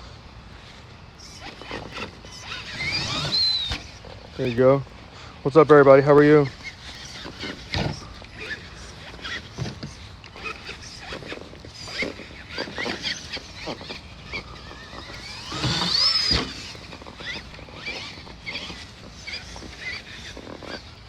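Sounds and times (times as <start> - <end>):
toy truck electric motor whining: 0.0 - 21.0.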